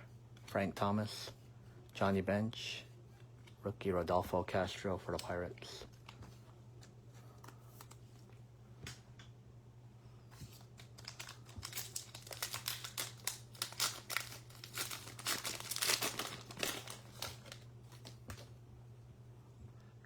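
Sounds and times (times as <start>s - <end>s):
low electrical hum: 0.0s - 20.0s
plastic wrapper tearing and crinkling: 10.5s - 18.5s.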